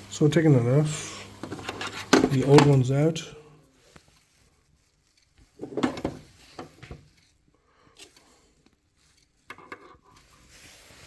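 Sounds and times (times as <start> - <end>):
knocks and rustling: 5.5 - 7.2.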